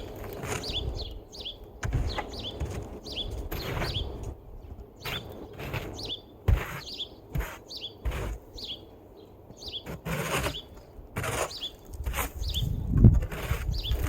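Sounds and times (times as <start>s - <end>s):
small bird chirping: 0.0s - 14.0s
scraping or knocking noises: 5.0s - 8.5s, 9.8s - 14.0s.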